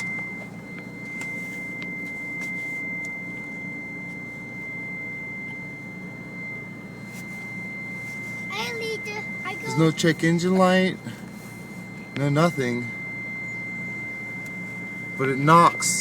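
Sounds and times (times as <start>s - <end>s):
steady high-pitched tone: 0.0s - 16.0s
car engine idling: 6.2s - 16.0s.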